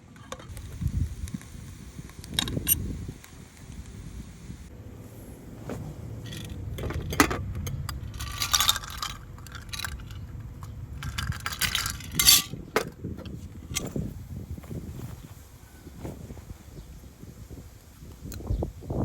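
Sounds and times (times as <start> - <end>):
low steady rumble: 0.0 - 17.7
metallic clinking and rattling: 6.1 - 14.1.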